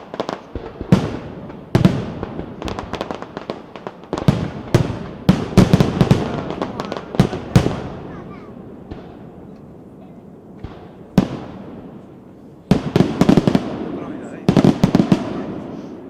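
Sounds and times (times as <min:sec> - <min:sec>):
fireworks bangs: 0:00.0 - 0:16.0
fireworks pops: 0:08.9 - 0:12.1.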